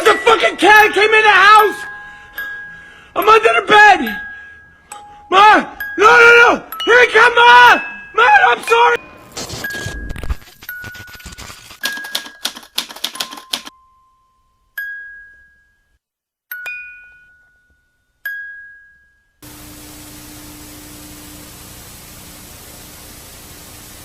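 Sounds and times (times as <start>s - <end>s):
typewriter keys clattering: 10.4s - 13.7s
static hiss: 19.4s - 24.0s.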